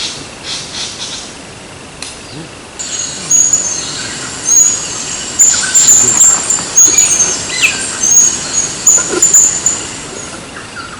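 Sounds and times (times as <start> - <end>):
bird chirps: 2.3 - 10.9.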